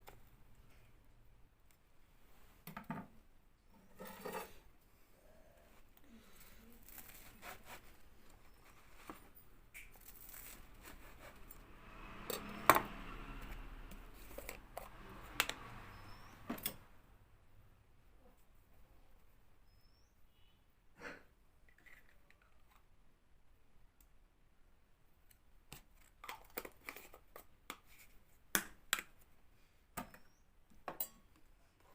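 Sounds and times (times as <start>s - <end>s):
food tearing and rustling: 6.7s - 9.1s, 9.8s - 11.4s.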